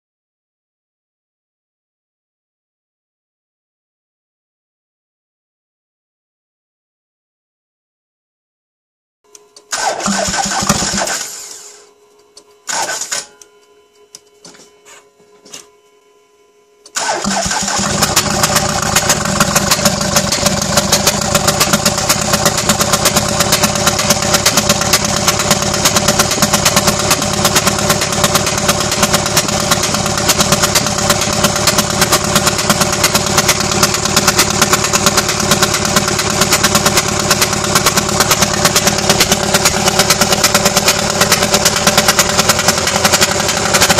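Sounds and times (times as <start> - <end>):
engine running with rapid ticking: 9.7 - 11.7, 12.7 - 13.2, 16.9 - 43.9
engine starting up: 9.7 - 11.9, 12.7 - 13.3, 16.9 - 43.9.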